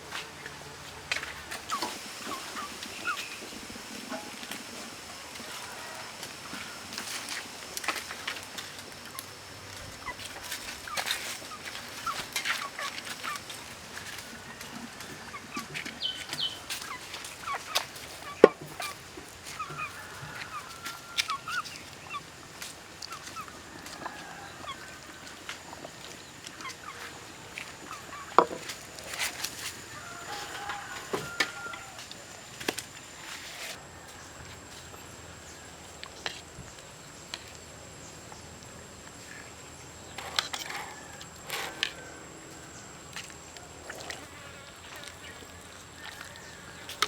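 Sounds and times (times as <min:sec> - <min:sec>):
poultry calls: 0:00.1 - 0:08.3, 0:09.1 - 0:33.6.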